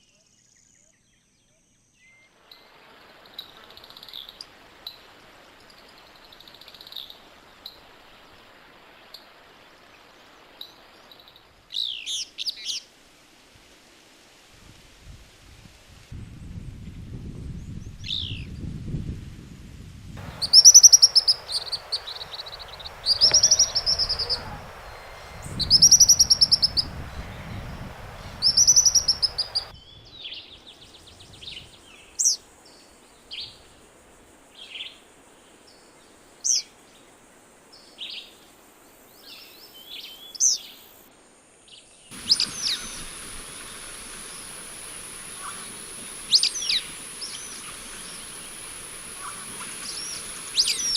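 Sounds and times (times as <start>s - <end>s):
wild birds singing and calling: 20.2s - 33.7s, 41.7s - 50.9s.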